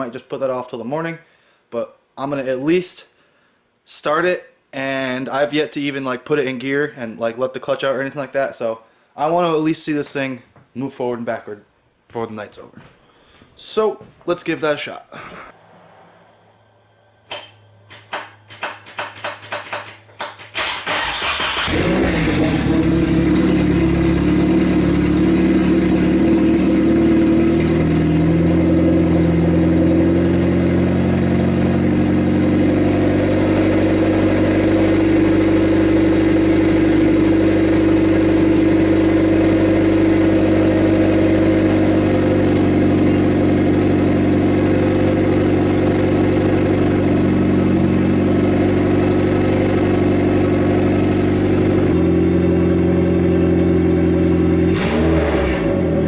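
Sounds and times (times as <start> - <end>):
car engine idling: 20.6 - 56.0.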